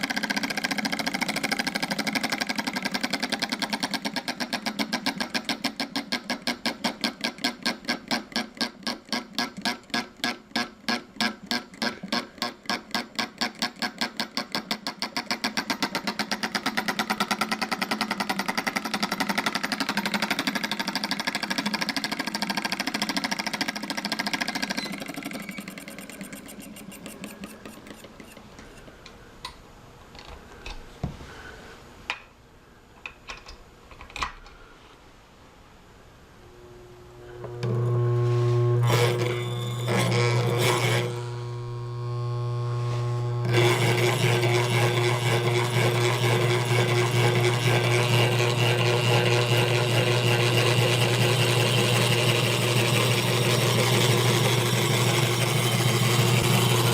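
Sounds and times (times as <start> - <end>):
model solenoid engine clacking: 0.0 - 28.9.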